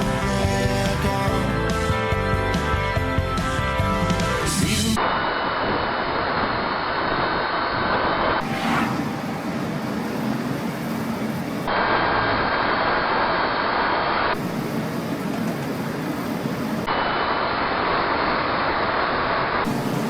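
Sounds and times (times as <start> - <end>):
faint steady whine: 5.0 - 20.0
road and wind noise: 5.0 - 20.0.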